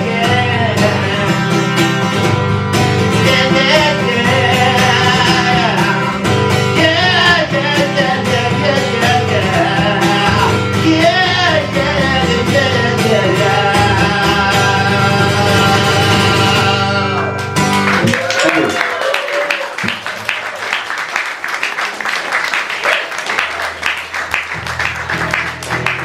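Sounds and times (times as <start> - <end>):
person singing: 0.0 - 2.3, 3.0 - 17.4
guitar: 0.0 - 19.2, 23.2 - 26.0.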